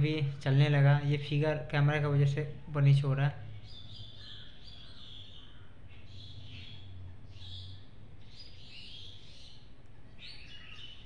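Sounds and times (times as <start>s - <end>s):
birds chirping: 0.0s - 11.0s
low steady hum: 0.0s - 11.0s.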